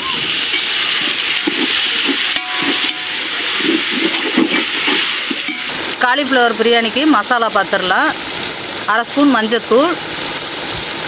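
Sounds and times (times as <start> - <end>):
tomatoes sizzling in oil: 0.0 - 11.0
ladle stirring in pot: 0.3 - 5.8
metal clink: 2.3 - 3.3, 4.1 - 5.7.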